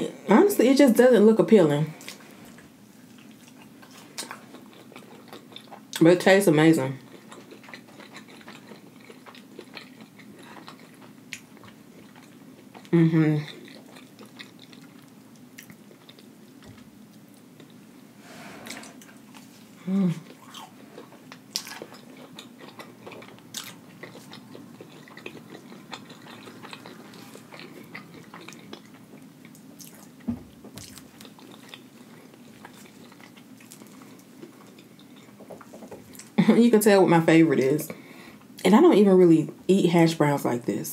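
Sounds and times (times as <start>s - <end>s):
crunchy food chewing: 2.0s - 6.0s, 6.9s - 36.4s
soft thump: 30.3s - 30.6s.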